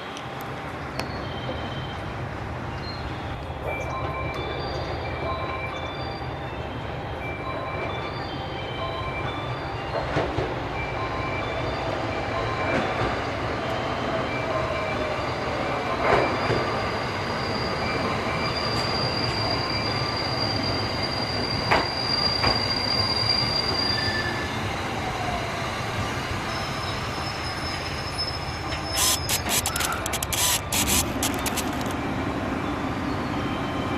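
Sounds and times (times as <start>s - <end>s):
railway cars rumbling: 0.0s - 33.9s
steel wheels squealing: 15.1s - 25.0s, 26.1s - 32.1s.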